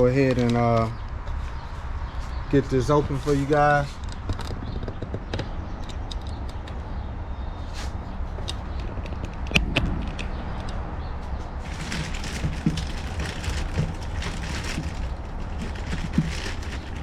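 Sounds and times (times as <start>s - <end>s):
steady low rumble: 0.0s - 17.0s
clicks and knock: 8.4s - 10.8s
wrapping rustling: 11.6s - 17.0s.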